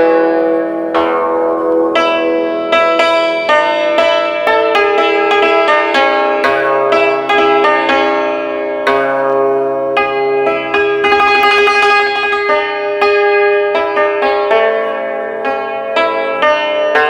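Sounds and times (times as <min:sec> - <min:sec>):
hammered dulcimer notes: 0:00.0 - 0:17.0.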